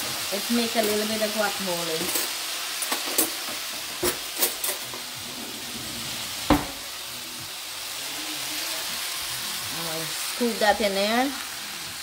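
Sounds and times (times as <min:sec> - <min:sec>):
food sizzling in a pan: 0:00.0 - 0:12.0
kitchen utensils knocking: 0:06.5 - 0:06.8.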